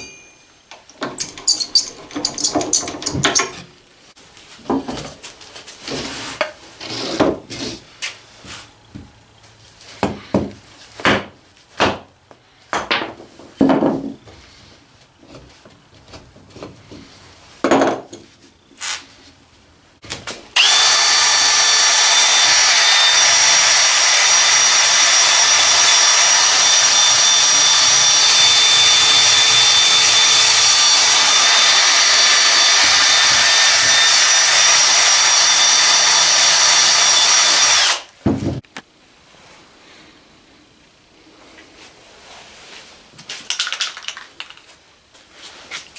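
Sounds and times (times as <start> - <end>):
power tool whining: 1.0 - 3.6, 20.6 - 38.1
scrapes and knocks: 1.0 - 3.7.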